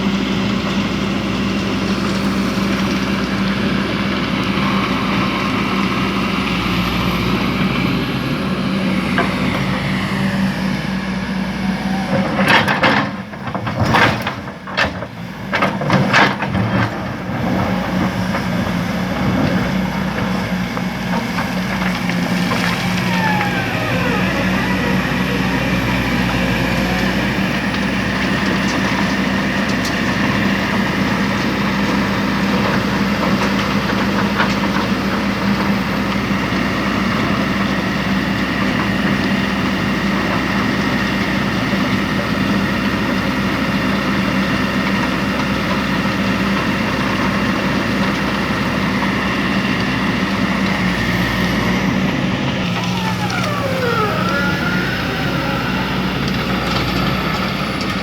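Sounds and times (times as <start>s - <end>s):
diesel machinery running: 0.0s - 58.0s
whine gliding down in pitch: 52.8s - 57.4s.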